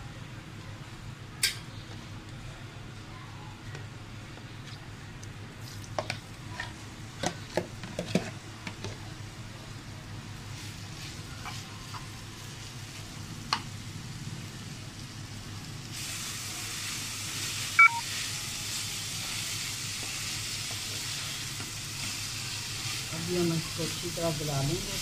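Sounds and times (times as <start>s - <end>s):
mince sizzling in a pan: 10.2s - 25.0s.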